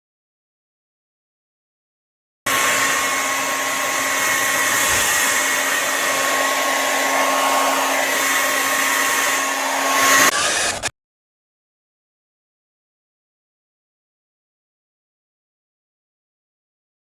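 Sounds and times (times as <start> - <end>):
hair dryer running: 2.5 - 10.9.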